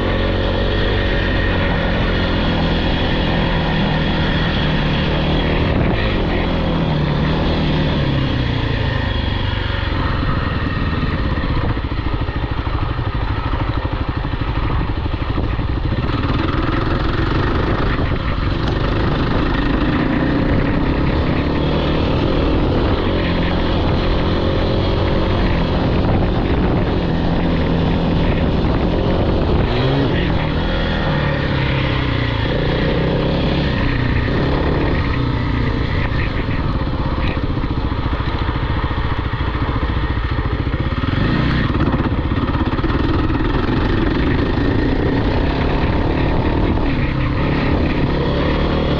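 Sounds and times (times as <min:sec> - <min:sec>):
off-road vehicle engine revving: 0:15.9 - 0:37.6, 0:40.9 - 0:48.9.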